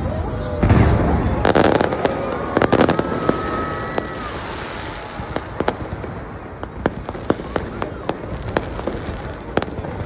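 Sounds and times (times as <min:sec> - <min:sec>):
fireworks bangs: 0:00.0 - 0:10.0
firework pops and cracks: 0:00.6 - 0:10.0
firework whistle: 0:00.8 - 0:05.8.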